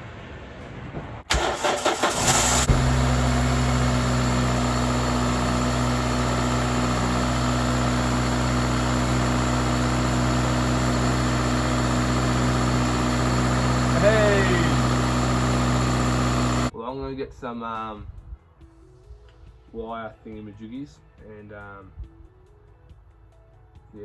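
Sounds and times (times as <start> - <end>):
car engine starting and idling: 1.3 - 16.7.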